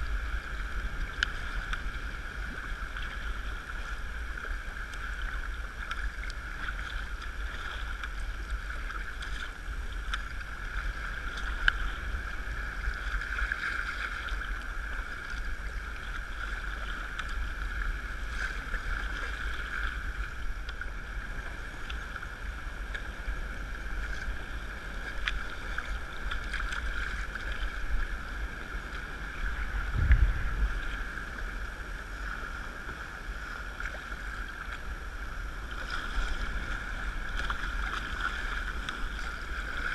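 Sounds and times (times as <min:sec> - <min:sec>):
water noise around kayak: 0:00.0 - 0:39.9
wind rumbling on microphone: 0:00.0 - 0:39.9
low thump: 0:29.9 - 0:30.6.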